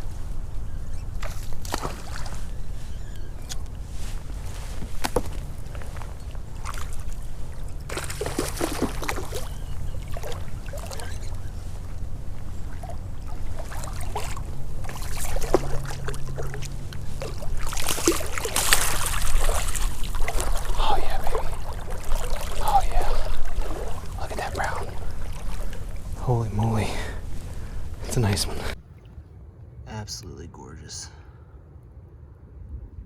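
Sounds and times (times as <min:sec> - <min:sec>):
water splashing and sloshing: 0:00.0 - 0:29.8
steady low rumble: 0:00.0 - 0:33.0.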